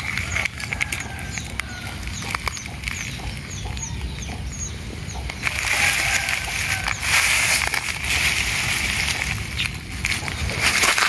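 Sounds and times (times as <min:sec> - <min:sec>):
dry leaves and grass rustling: 0:00.0 - 0:04.5, 0:05.2 - 0:11.0
small bird cheeping: 0:00.0 - 0:07.0.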